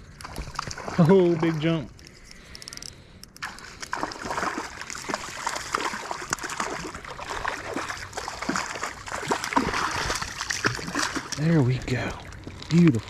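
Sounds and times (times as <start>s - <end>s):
fish splashing at the surface: 0.2s - 1.8s, 3.4s - 11.6s
creek water rushing: 4.0s - 12.2s.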